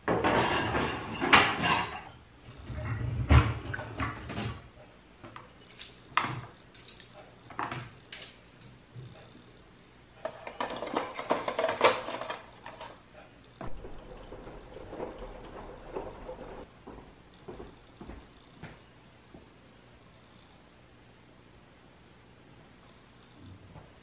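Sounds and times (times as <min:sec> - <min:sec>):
dishes and utensils clinking: 0:00.0 - 0:02.8, 0:05.6 - 0:08.9, 0:10.2 - 0:13.0
faint low hum: 0:00.0 - 0:24.0.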